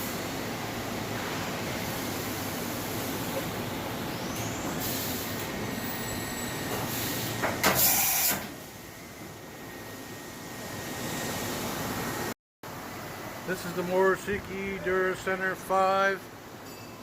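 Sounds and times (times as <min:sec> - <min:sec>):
loud hiss of air: 0:04.7 - 0:06.1, 0:06.8 - 0:08.8.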